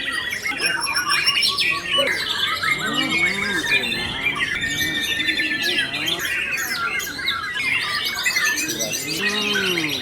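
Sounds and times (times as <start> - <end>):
other birds singing: 0.0 - 10.0
songbird singing trills: 0.3 - 10.0.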